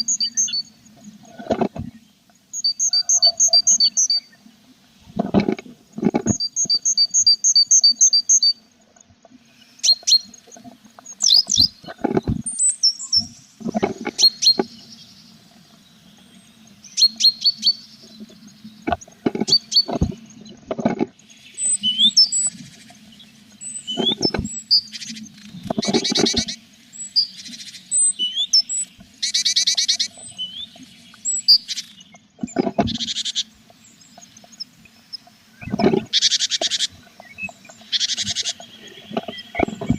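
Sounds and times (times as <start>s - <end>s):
nestlings chirping: 2.6s - 4.3s, 11.1s - 15.1s, 16.9s - 20.6s.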